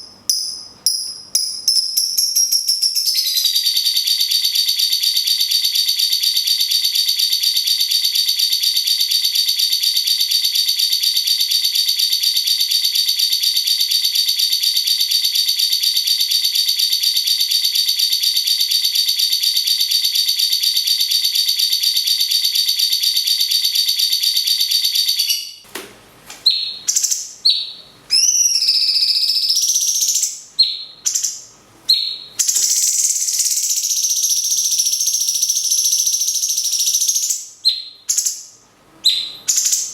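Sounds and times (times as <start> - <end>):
bird whistled calls: 1.7 - 3.9, 26.4 - 38.4, 39.0 - 39.9.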